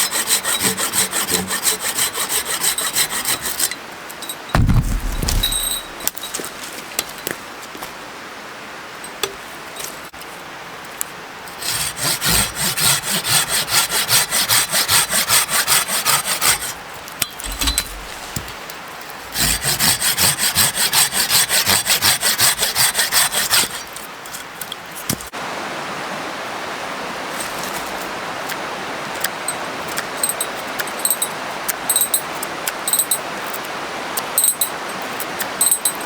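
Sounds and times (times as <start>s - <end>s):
hand saw cutting wood: 0.0s - 3.8s, 4.6s - 6.0s, 11.5s - 24.5s.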